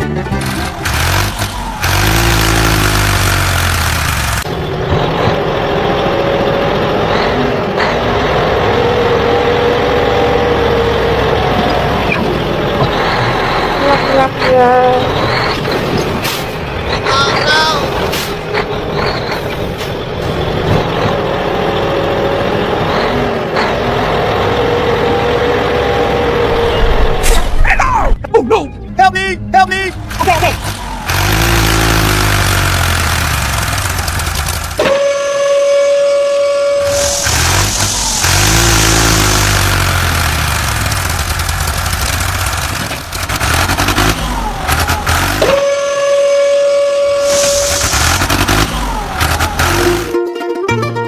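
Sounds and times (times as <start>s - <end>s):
vehicle engine humming with hiss: 30.0s - 34.8s, 36.8s - 50.2s
rapid rattling clatter: 40.0s - 45.2s.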